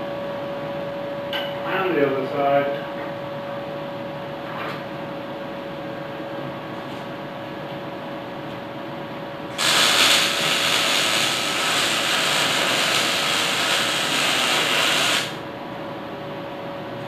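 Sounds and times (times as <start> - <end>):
steady background hum: 0.0 - 17.0
welding arc crackling and hissing: 9.5 - 15.5.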